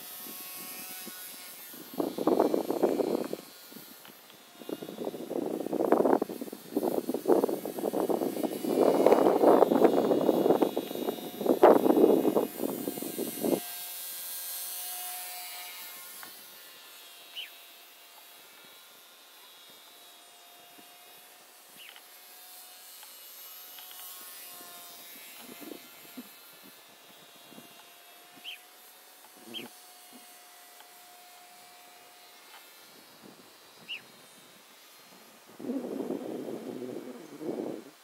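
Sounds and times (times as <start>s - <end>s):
rc plane motor whine: 0.0s - 38.0s
wind buffeting microphone: 0.2s - 3.9s, 4.6s - 13.6s, 25.2s - 27.7s, 35.5s - 38.0s.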